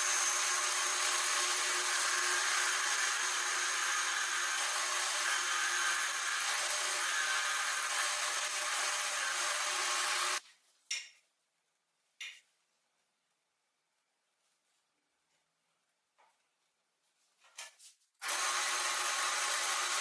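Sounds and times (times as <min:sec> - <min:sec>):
power tool grinding: 0:00.0 - 0:10.4, 0:18.2 - 0:20.0.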